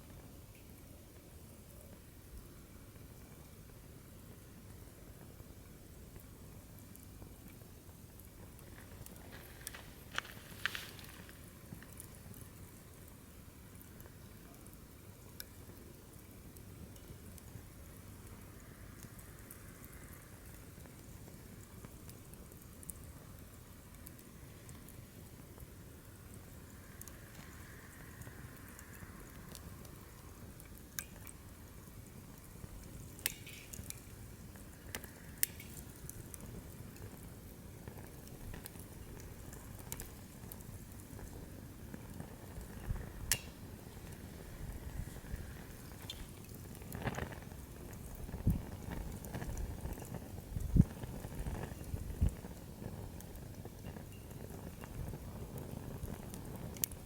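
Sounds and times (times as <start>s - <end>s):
flame rumble: 0.0s - 57.0s
wood fire crackling and popping: 3.0s - 57.0s.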